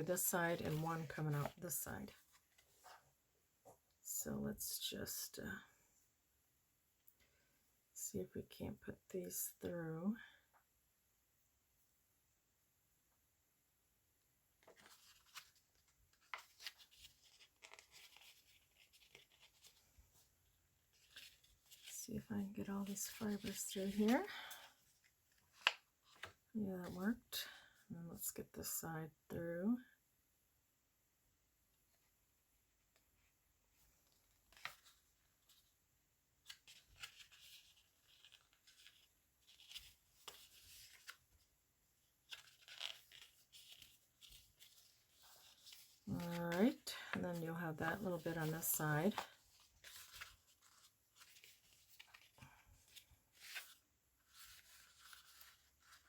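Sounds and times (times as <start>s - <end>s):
paper rustling: 0.1s - 3.0s, 14.6s - 20.3s, 20.9s - 22.0s, 22.8s - 26.4s, 34.0s - 35.7s, 36.4s - 41.5s, 42.2s - 47.4s, 48.0s - 56.0s.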